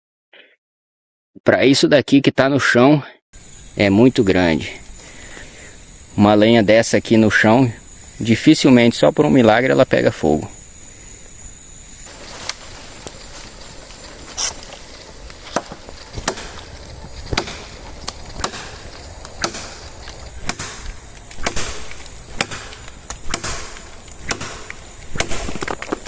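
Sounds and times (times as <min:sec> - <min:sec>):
machete chopping branch: 0:15.3 - 0:26.0.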